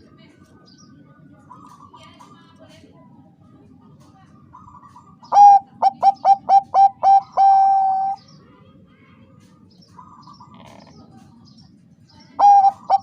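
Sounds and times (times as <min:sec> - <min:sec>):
dove cooing: 0:05.3 - 0:08.2, 0:12.4 - 0:13.0.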